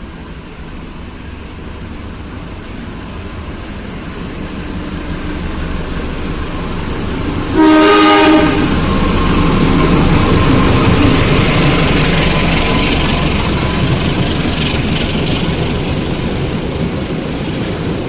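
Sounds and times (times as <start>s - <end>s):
train rumbling past: 0.0s - 18.0s
locomotive horn blast: 7.5s - 8.8s.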